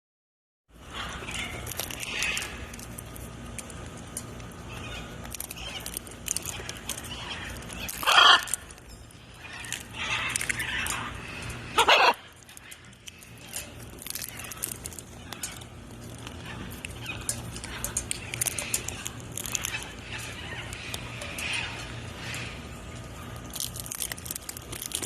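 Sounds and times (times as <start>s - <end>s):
parrots squawking: 0.8s - 2.9s, 4.6s - 25.0s
soft parrot calls: 7.0s - 8.7s, 9.4s - 12.3s.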